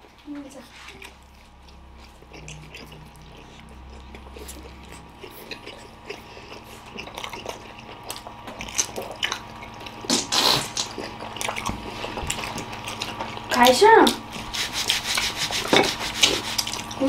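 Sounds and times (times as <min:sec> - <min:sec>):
wet chewing: 0:00.0 - 0:17.0.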